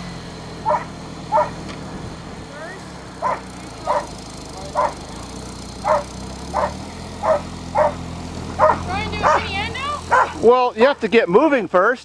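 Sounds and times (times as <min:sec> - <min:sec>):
engine running: 0:00.0 - 0:12.0
dog barking: 0:00.6 - 0:01.6, 0:03.2 - 0:05.1, 0:05.8 - 0:08.0, 0:08.6 - 0:10.4.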